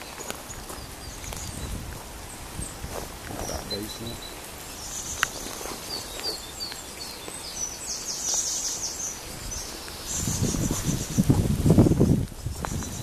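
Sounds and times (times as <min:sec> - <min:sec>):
low rustling with soft thuds: 0:00.0 - 0:07.5
outdoor background noise: 0:00.0 - 0:13.0
songbirds chirping and trilling: 0:00.0 - 0:13.0.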